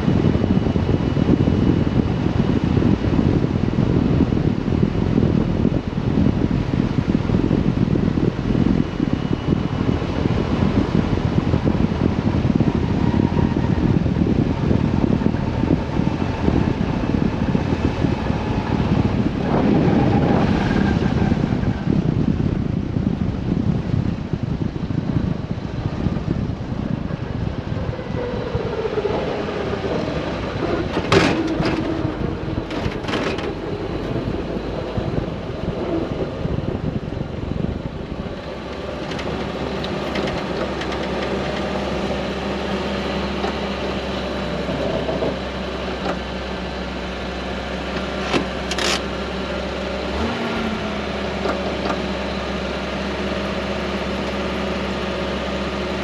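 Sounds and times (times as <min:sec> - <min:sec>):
car engine running: 0:00.0 - 0:56.0
wind and road noise: 0:00.0 - 0:56.0.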